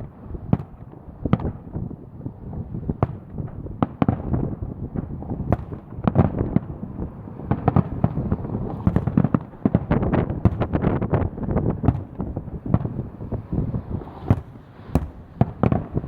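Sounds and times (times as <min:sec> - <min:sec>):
fireworks bursting: 0:00.0 - 0:16.0
wind buffeting microphone: 0:00.0 - 0:16.0.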